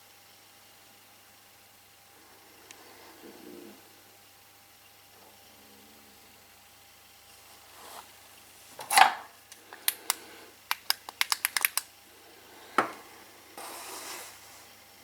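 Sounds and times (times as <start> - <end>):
sharp metallic clicks: 9.8 - 11.9.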